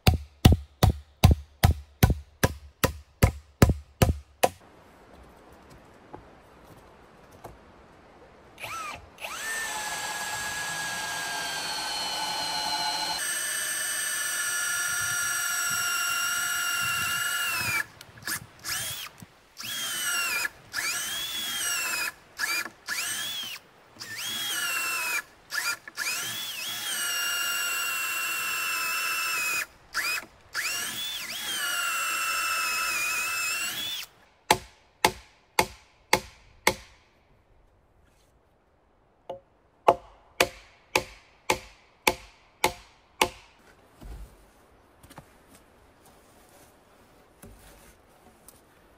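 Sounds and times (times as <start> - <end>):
cordless drill driving screws: 8.6 - 34.1.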